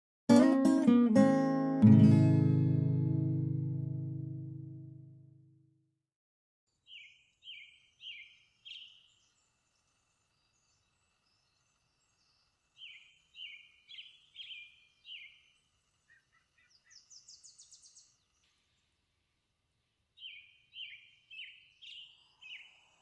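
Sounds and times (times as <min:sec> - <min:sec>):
songbird whistling: 0:06.9 - 0:09.2, 0:12.2 - 0:18.2, 0:20.2 - 0:22.8.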